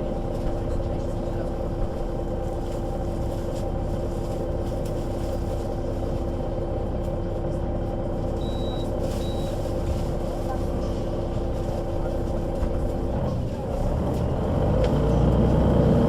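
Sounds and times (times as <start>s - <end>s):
bus engine drone and whine: 0.0s - 16.0s
faint high beep: 8.4s - 9.6s.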